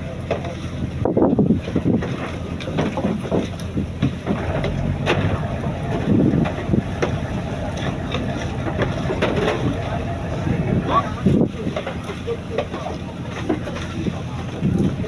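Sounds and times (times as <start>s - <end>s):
boat engine running: 0.0s - 15.0s
wind on microphone: 0.8s - 15.0s.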